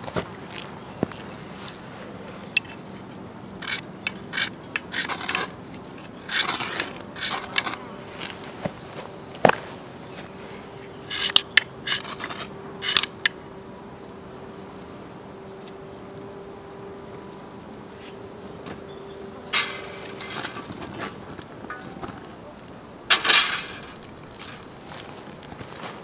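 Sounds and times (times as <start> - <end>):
insect buzz: 0.0 - 26.0
metal utensil scraping pan: 3.6 - 5.6, 6.2 - 7.8, 11.1 - 13.3, 19.5 - 22.0, 23.1 - 24.7.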